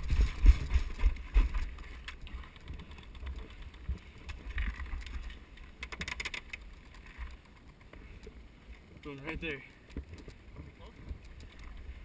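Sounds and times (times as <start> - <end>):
microphone handling noise: 0.0 - 1.8
wind rumble on microphone: 0.0 - 5.4.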